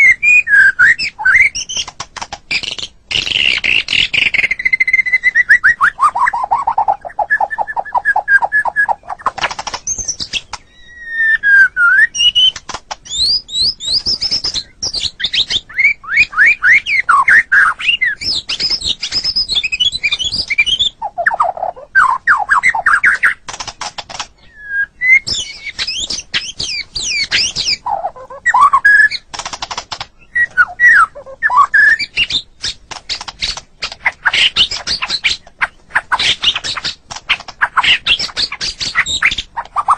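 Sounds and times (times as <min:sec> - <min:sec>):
songbird singing whistles: 0:00.0 - 0:01.9, 0:02.5 - 0:23.4, 0:24.4 - 0:29.3, 0:30.2 - 0:39.9
bird clicking chattering notes: 0:05.7 - 0:10.7, 0:17.2 - 0:24.4, 0:25.2 - 0:39.9.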